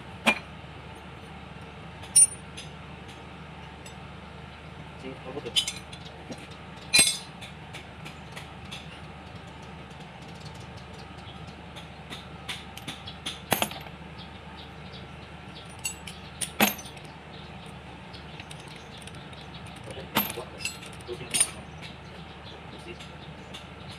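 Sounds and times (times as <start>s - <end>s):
steady low hum: 0.0s - 23.9s
metal tools clinking: 2.0s - 2.4s, 5.4s - 6.1s, 6.8s - 7.3s, 15.6s - 17.1s, 18.4s - 21.7s.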